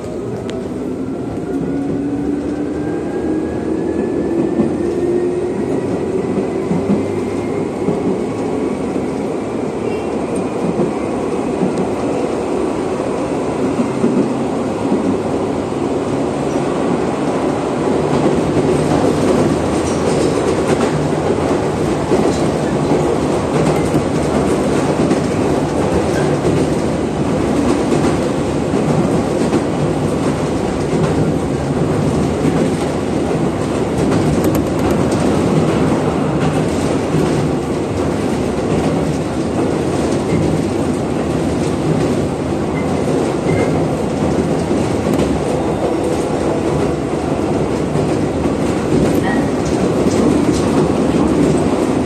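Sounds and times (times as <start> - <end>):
electric train whine: 0.0 - 9.4
train running noise: 0.0 - 52.0.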